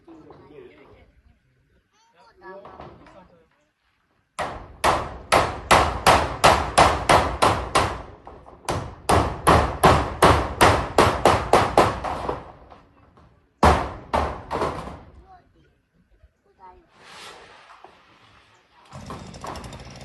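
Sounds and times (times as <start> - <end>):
hammer nailing metal roofing: 4.4 - 13.0, 13.6 - 15.1, 18.9 - 20.0.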